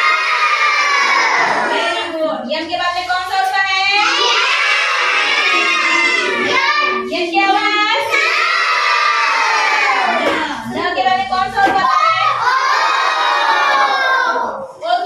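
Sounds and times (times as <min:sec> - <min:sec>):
children singing in unison: 0:00.0 - 0:02.0, 0:04.0 - 0:07.1, 0:08.0 - 0:10.4, 0:11.9 - 0:14.6.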